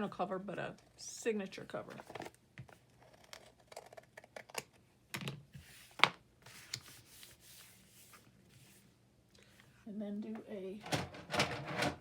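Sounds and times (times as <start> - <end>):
paper rustling: 5.6 - 8.8.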